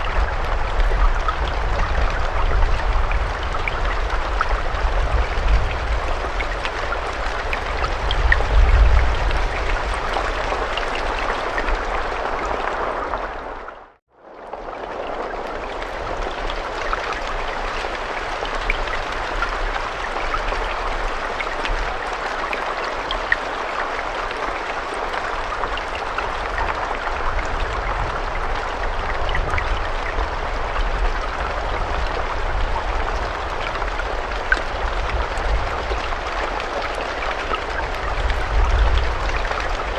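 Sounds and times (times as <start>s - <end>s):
steady rain: 0.0s - 39.9s
rain drop ticks: 14.4s - 39.9s.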